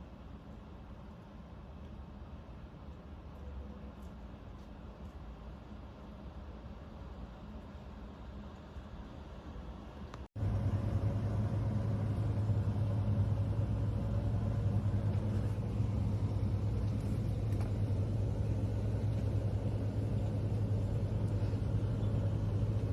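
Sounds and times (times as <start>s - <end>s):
vehicle engine humming: 10.1s - 22.9s.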